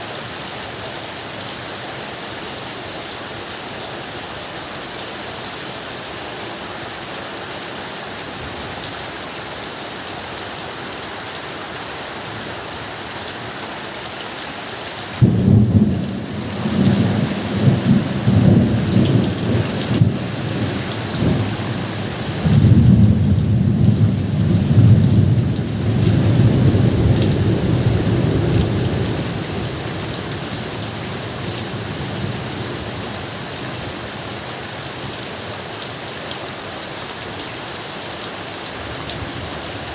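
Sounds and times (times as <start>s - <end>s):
steady rain hissing: 0.0s - 39.9s
rumble of thunder: 15.2s - 29.8s.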